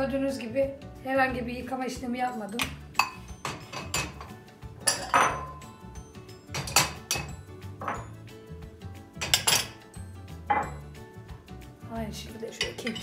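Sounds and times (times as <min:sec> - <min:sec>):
quiet background music: 0:00.0 - 0:13.0
ceramic bowls clinking: 0:02.6 - 0:05.7, 0:06.4 - 0:08.2, 0:09.2 - 0:09.8, 0:10.4 - 0:10.9, 0:12.6 - 0:13.0.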